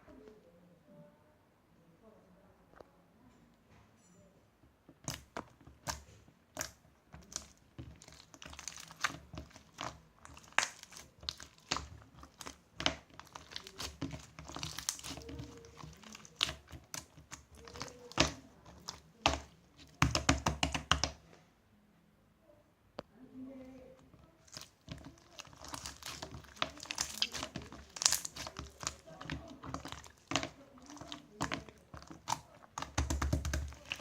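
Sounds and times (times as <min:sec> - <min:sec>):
crinkling: 0:04.8 - 0:21.3, 0:23.7 - 0:34.0.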